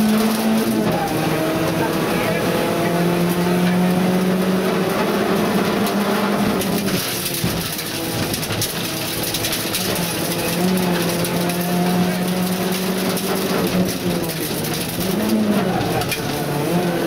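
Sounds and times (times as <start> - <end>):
car engine at high revs: 0.0 - 17.0
clicks and rattles: 5.8 - 16.6.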